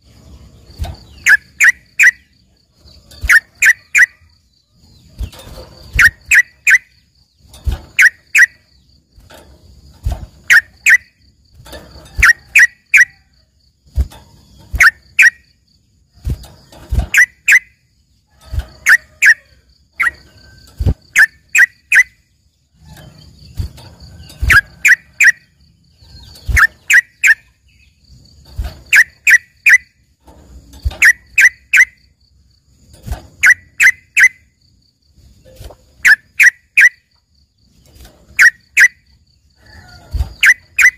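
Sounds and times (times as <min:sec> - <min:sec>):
bird calling in sharp notes: 0:06.0 - 0:07.0, 0:08.0 - 0:08.6.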